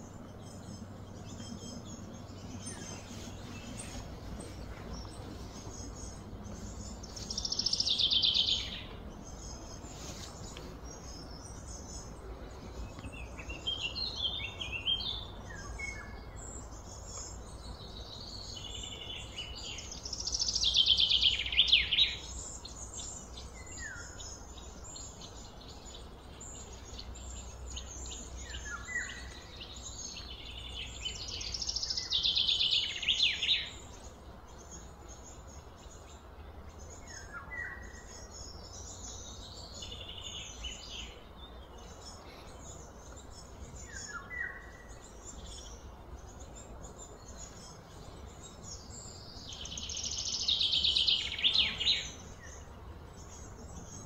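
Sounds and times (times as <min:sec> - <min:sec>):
low background rumble: 0:00.0 - 0:20.4
bird chirps: 0:00.0 - 0:54.0
songbird trill: 0:00.0 - 0:54.0.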